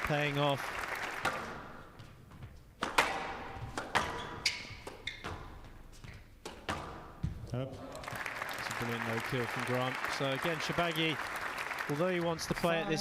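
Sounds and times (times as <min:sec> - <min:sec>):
squash ball cracks: 0:02.8 - 0:04.2
shoe squeaks: 0:04.0 - 0:06.4.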